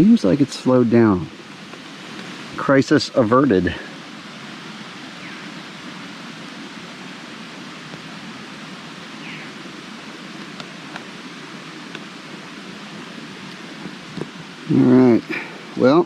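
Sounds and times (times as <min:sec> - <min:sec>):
light rain falling: 0:00.0 - 0:16.0
water drips ticking: 0:10.3 - 0:11.2, 0:11.8 - 0:14.4.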